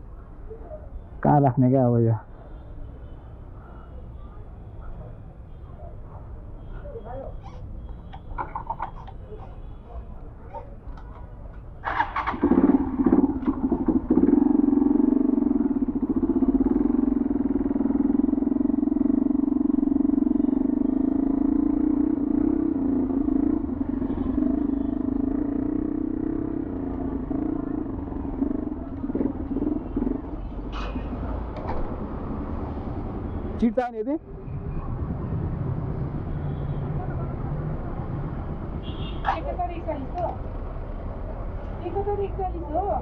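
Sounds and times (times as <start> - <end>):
motorcycle engine revving and idling: 11.8 - 33.6.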